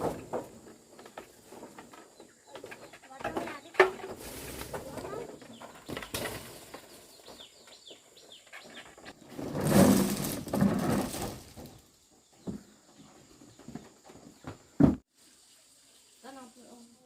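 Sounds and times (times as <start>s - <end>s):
small birds chirping: 0.9s - 9.4s, 11.9s - 17.0s
loud rustling: 8.8s - 11.8s.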